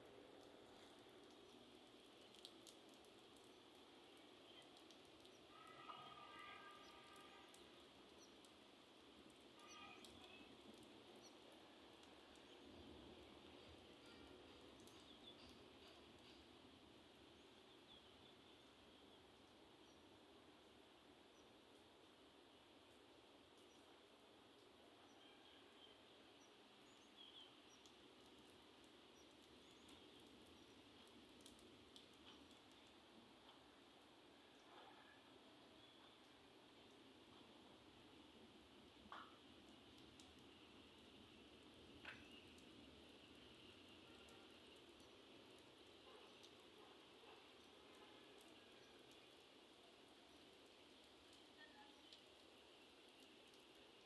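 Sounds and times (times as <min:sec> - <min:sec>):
faint steady rain: 0:00.0 - 0:54.0
light ticks of drops: 0:00.4 - 0:16.5, 0:25.8 - 0:34.8, 0:38.9 - 0:54.0.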